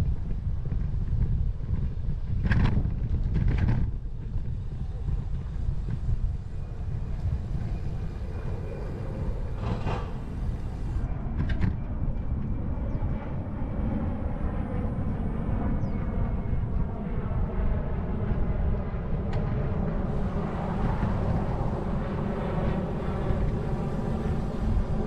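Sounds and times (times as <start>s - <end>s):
bicycle riding rumble: 0.0s - 11.7s, 19.5s - 25.0s
wind on microphone: 0.0s - 25.0s.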